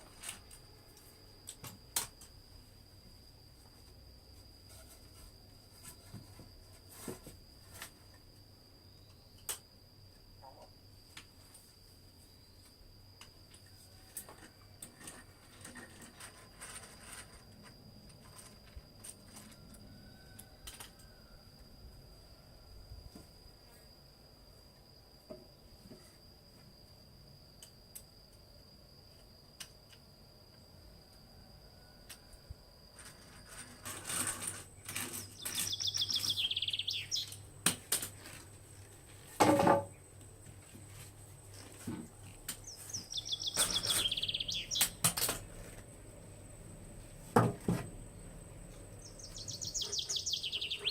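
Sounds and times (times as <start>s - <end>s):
high-pitched insect drone: 0.0s - 39.4s, 40.0s - 50.9s
bird descending trill: 35.3s - 37.3s, 42.9s - 44.8s, 49.0s - 50.9s.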